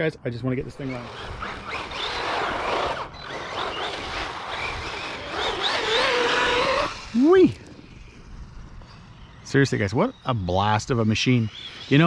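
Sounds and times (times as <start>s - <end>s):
tyres rushing on ground: 0.7s - 7.6s
electric toy truck motor whine: 0.8s - 12.0s.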